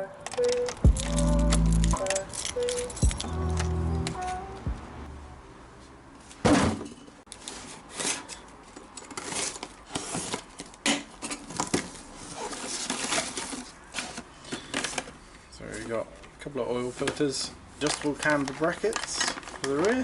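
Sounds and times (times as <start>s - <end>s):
packaging rustling: 17.8s - 20.0s.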